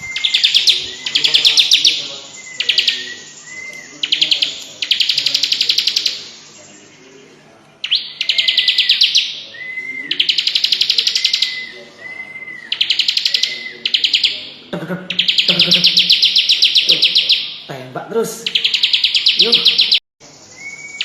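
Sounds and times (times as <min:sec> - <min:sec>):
short whistled bird notes: 0:00.0 - 0:04.2, 0:18.7 - 0:21.0
bird rattling trills: 0:00.0 - 0:07.0, 0:07.8 - 0:11.8, 0:15.2 - 0:17.7.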